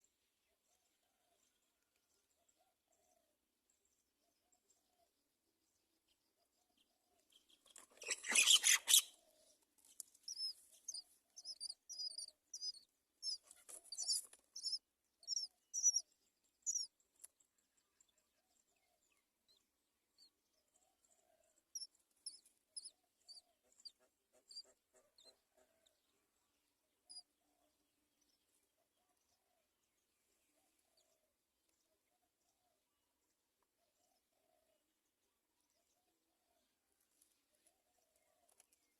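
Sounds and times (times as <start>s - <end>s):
nestlings chirping: 7.7s - 9.2s, 10.0s - 16.0s, 16.7s - 16.9s, 21.8s - 23.4s.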